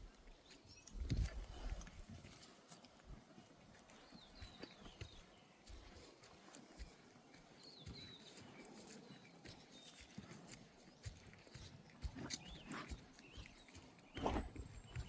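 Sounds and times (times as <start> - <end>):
footsteps on dirt track: 0.0 - 15.0.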